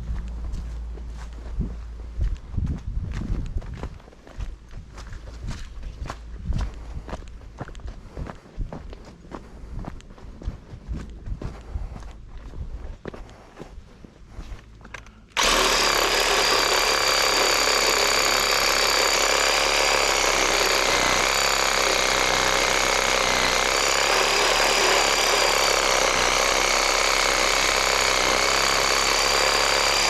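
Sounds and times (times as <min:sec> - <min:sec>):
chainsaw cutting wood: 0:15.4 - 0:30.0.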